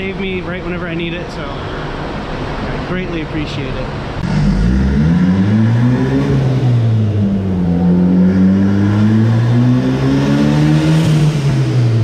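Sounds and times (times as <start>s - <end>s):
car engine revving on dyno: 3.9s - 12.0s.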